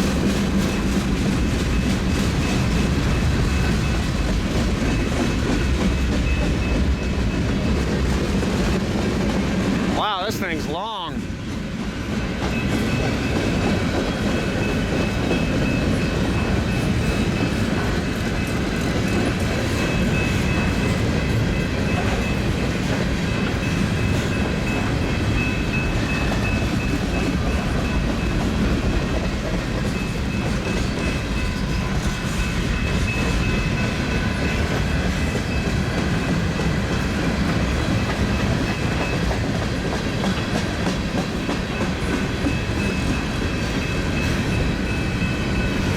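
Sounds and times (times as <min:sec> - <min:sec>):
freight train rolling on rails: 0:00.0 - 0:45.9.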